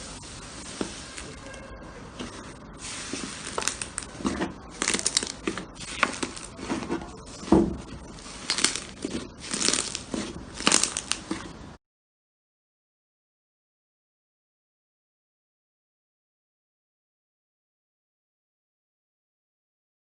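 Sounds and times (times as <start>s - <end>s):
slime squeezed by hand crackling: 4.8s - 6.8s, 8.2s - 11.5s.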